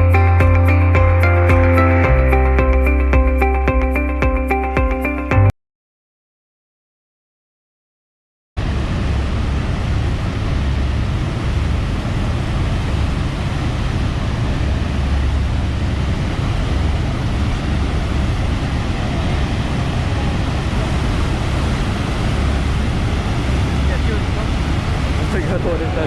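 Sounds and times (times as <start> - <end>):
boat engine: 0.0 - 5.2, 8.6 - 26.0
rushing water roar: 8.6 - 26.0.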